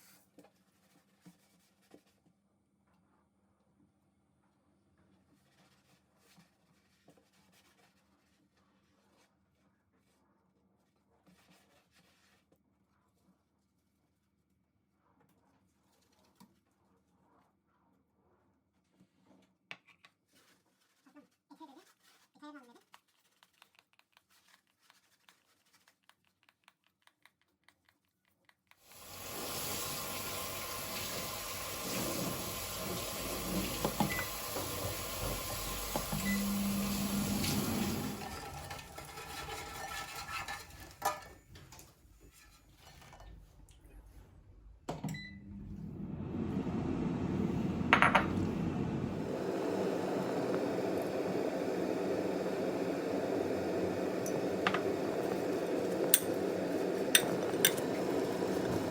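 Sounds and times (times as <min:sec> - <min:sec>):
water running from a tap: 0:28.8 - 0:40.1, 0:48.8 - 0:58.9
dishes and utensils clinking: 0:54.2 - 0:58.7.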